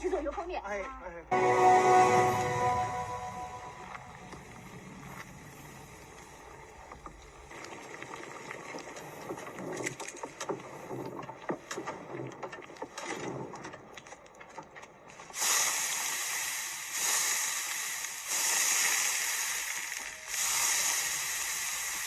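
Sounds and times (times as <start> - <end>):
hot oil sizzling hiss: 15.3 - 22.0.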